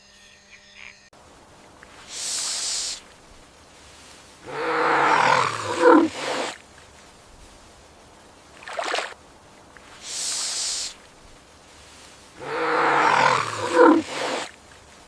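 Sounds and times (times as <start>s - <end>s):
hiss: 1.8s - 8.4s, 9.8s - 15.0s
large animal loud call: 4.4s - 6.6s, 12.4s - 14.5s.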